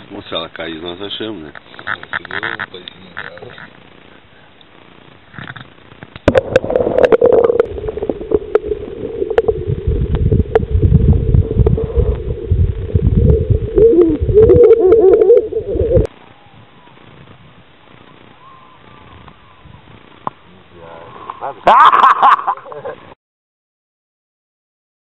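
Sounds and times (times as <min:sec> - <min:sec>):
muffled underwater water churning: 0:06.2 - 0:16.1.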